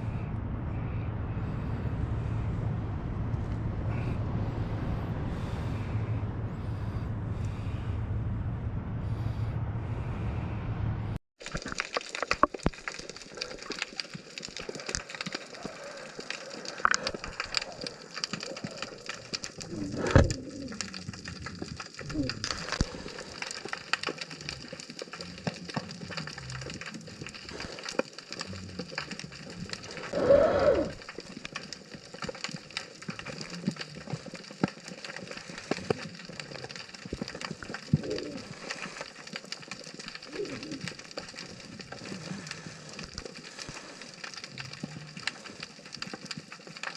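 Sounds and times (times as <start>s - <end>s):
snapping shrimp crackle: 11.4s - 46.9s.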